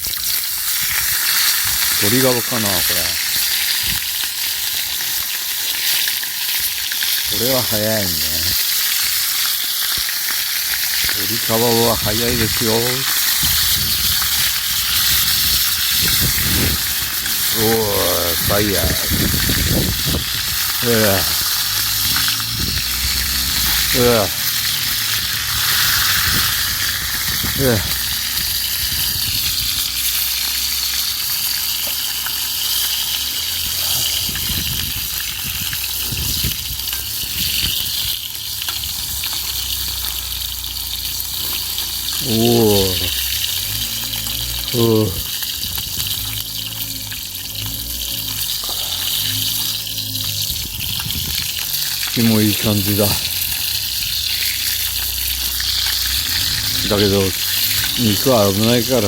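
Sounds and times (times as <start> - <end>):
campfire crackling: 0.0 - 59.0
chicken skin sizzling and spitting: 0.0 - 59.0
fat flaring in flames: 11.9 - 31.8.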